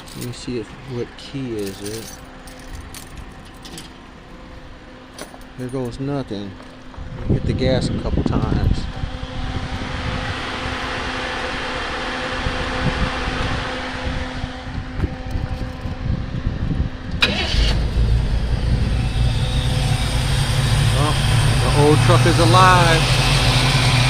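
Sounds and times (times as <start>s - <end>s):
engine running low rumble: 0.0s - 24.0s
engine crack as it catches: 17.1s - 23.8s
engine cranking on starter: 17.2s - 24.0s.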